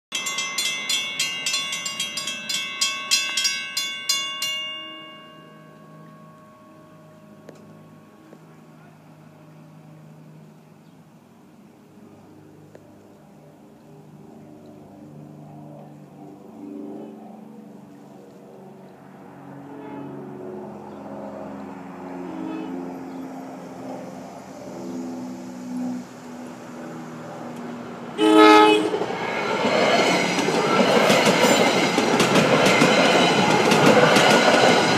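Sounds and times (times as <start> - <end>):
railroad crossing bells ringing: 0.1 - 9.6, 28.2 - 34.9
steady tones shifting pitch: 0.1 - 10.8
vehicle engine noise: 5.4 - 34.9.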